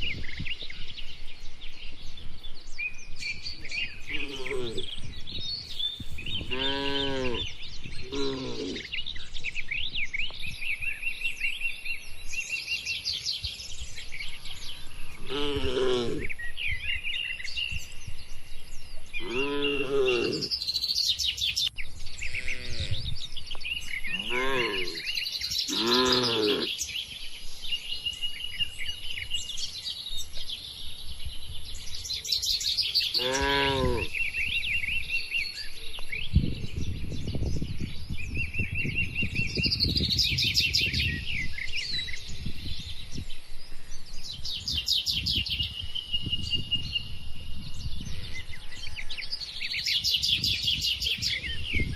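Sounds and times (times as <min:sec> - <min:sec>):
birds chirping: 0:00.0 - 0:51.9
cattle mooing: 0:04.1 - 0:04.9, 0:06.5 - 0:07.5, 0:08.1 - 0:08.9, 0:15.2 - 0:16.3, 0:19.2 - 0:20.5, 0:22.3 - 0:23.0, 0:24.1 - 0:25.1, 0:25.7 - 0:26.7, 0:33.2 - 0:34.1.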